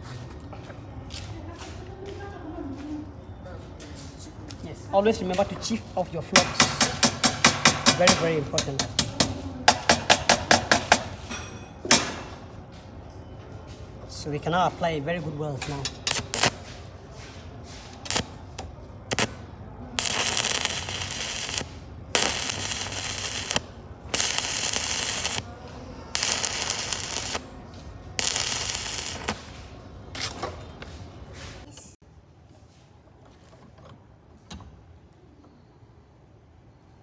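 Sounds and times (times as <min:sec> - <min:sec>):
welding arc crackling: 0:15.8 - 0:16.6, 0:18.0 - 0:31.6
sharp clicks: 0:20.0 - 0:30.3.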